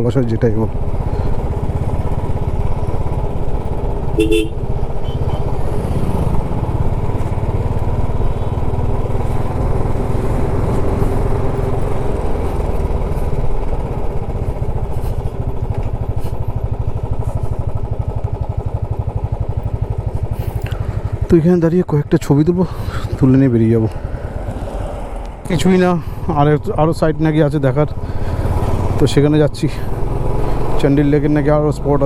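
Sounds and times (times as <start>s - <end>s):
motorcycle engine running: 0.0s - 32.0s
vehicle horn: 4.1s - 5.6s.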